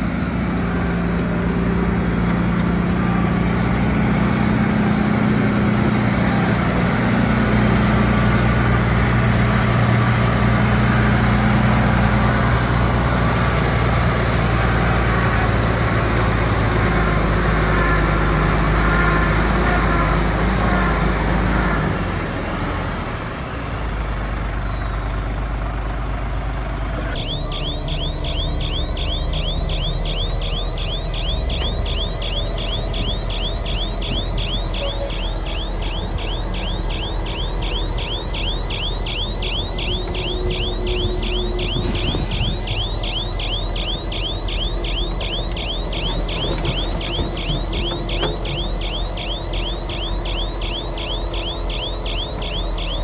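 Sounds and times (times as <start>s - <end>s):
heavy diesel engine under load: 0.0s - 53.0s.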